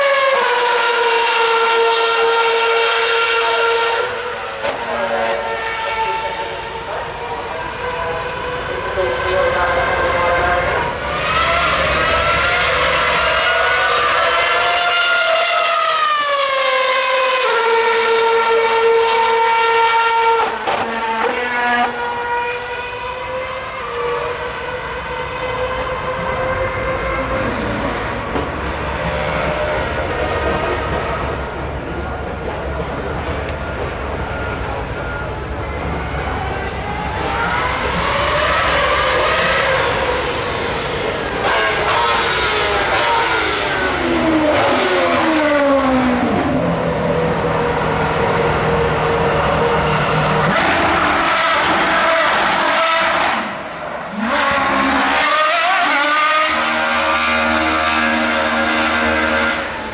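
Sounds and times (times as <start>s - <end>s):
racing car engine at high revs: 0.0s - 59.9s.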